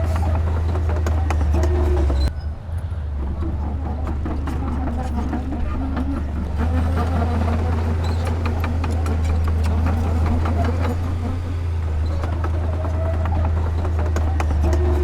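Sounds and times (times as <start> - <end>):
metal and rock clanking: 0.0 - 2.3
diesel engine under load: 0.0 - 15.0.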